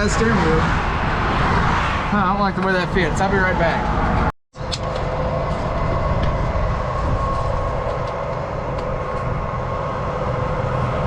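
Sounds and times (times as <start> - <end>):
truck engine rumble: 0.0 - 11.0
steady whine: 2.2 - 11.0.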